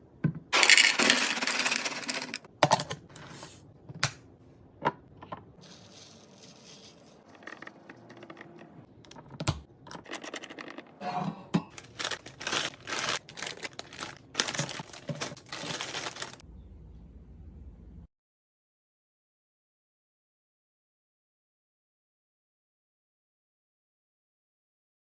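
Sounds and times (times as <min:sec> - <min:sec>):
wrappers tearing and crinkling: 0:11.7 - 0:16.4.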